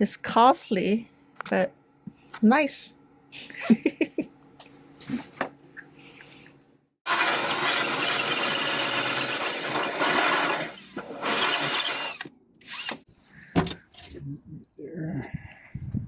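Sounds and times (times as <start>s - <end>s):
power drill running: 7.1s - 13.1s.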